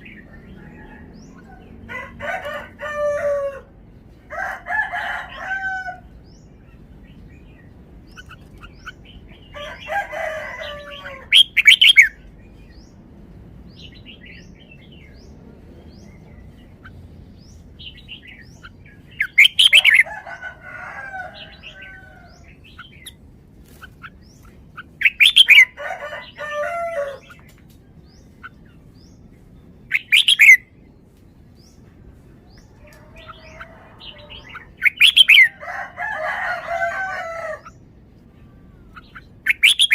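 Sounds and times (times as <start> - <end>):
bird singing warbling phrases: 6.1 - 13.0, 13.7 - 20.6, 21.2 - 31.0, 32.6 - 35.6, 36.5 - 39.9.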